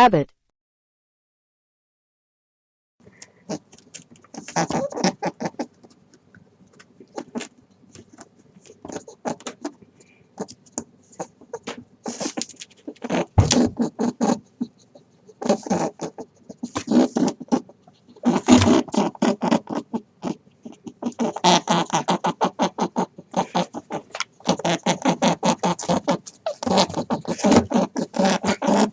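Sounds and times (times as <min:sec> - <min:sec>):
rabbit clicking: 0:03.2 - 0:09.8.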